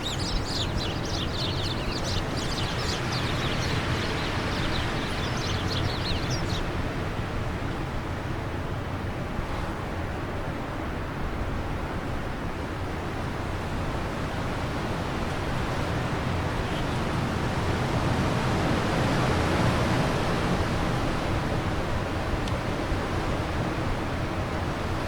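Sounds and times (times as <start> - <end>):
wind blowing: 0.0 - 7.4.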